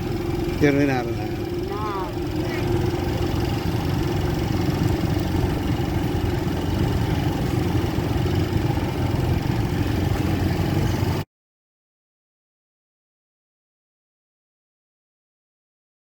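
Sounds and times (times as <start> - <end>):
motorcycle engine droning: 0.0 - 11.2.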